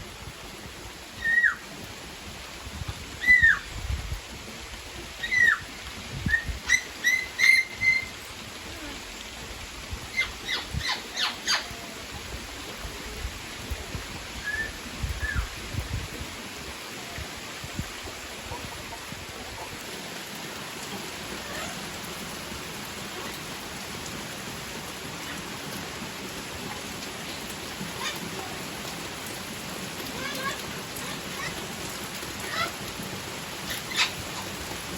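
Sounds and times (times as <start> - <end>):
steady rain falling: 0.0 - 34.9
birds chirping and calling: 5.2 - 5.7, 6.3 - 8.2, 10.1 - 11.8, 27.3 - 28.3, 33.6 - 34.6.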